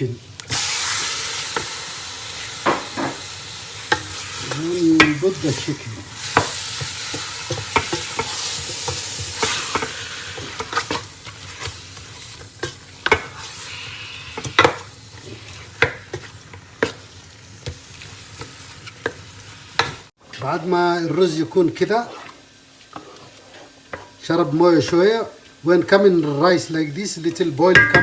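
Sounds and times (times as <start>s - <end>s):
chicken sizzling in a pot: 0.0s - 28.0s
spoon stirring and knocking pot: 5.0s - 5.6s, 6.2s - 13.3s, 14.4s - 14.9s, 27.3s - 28.0s.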